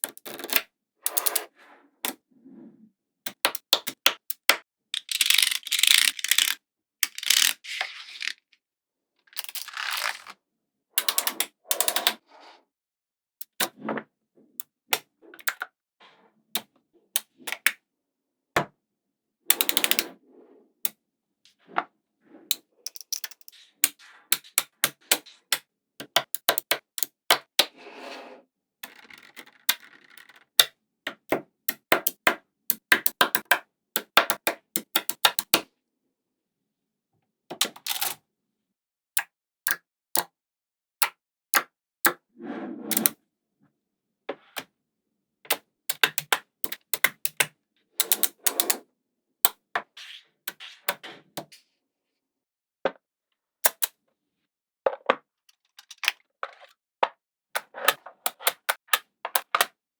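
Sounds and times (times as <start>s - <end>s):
balls rattling together: 5.0s - 8.4s
magnetic balls clicking: 45.5s - 48.8s.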